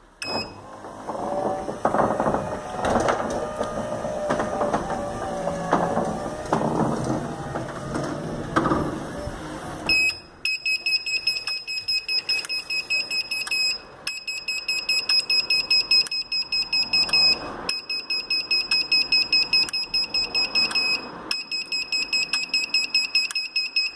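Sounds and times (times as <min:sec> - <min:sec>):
garage door opener drive running: 0:00.0 - 0:11.8.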